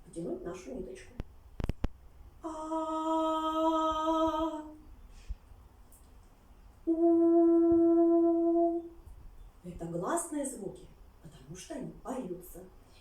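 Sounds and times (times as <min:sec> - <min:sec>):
woman singing held vowels: 0:02.4 - 0:04.9.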